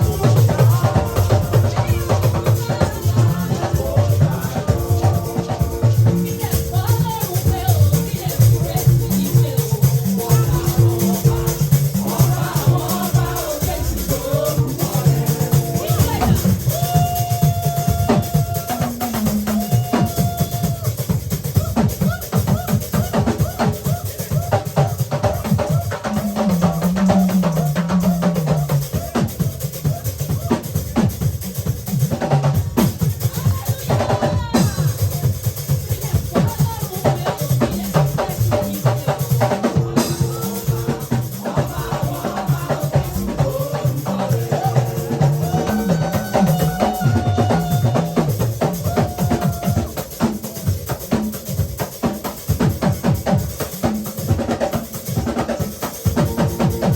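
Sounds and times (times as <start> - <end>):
moving bass line: 0.0 - 20.4, 37.1 - 49.9
drum kit steady beat: 0.0 - 56.9.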